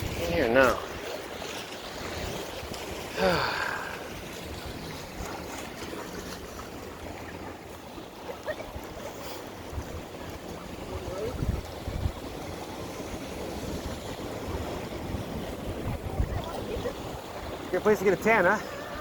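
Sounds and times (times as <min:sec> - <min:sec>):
ocean surf: 0:00.0 - 0:19.0
wind: 0:00.0 - 0:19.0
wavering voice-like call: 0:18.6 - 0:19.0.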